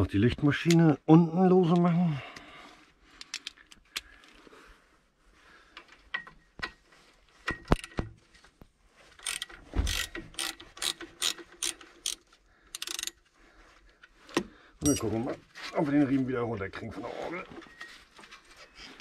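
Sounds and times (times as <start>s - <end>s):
ratchet wrench clicking: 9.2s - 13.2s.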